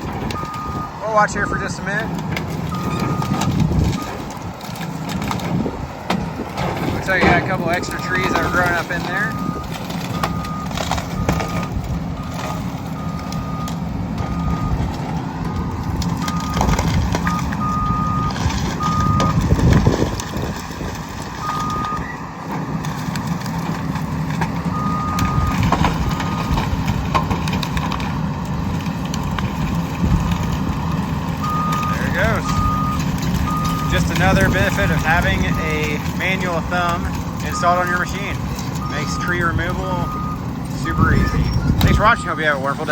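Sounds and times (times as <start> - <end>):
excavator diesel engine running: 0.0 - 42.9
cracks and knocks: 18.3 - 30.9
travel alarm short beeps: 40.0 - 42.3.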